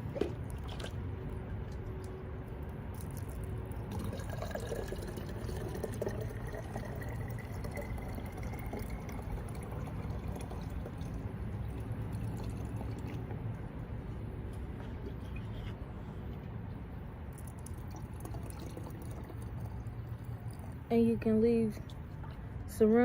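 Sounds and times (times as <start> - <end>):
water pouring into plastic jar: 2.9 - 13.3, 17.3 - 20.9.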